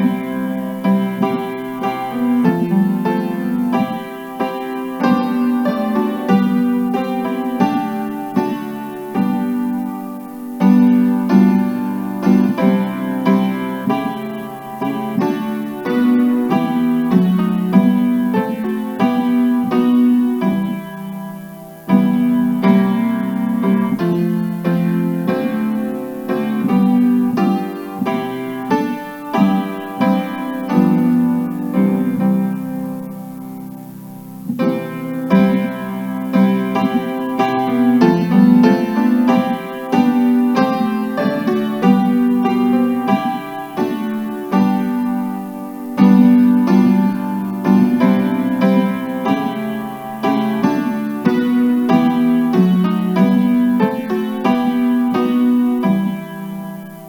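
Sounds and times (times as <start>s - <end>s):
piano playing hymn chords: 0.0s - 57.0s.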